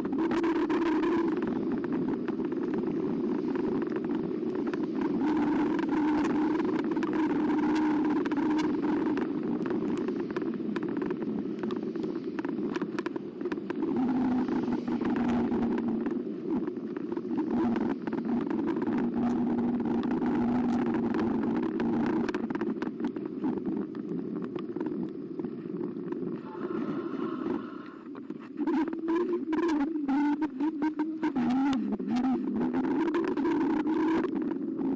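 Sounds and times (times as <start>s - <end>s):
tyre and wind rushing: 0.0s - 29.4s
electric bike motor hum: 0.0s - 34.9s.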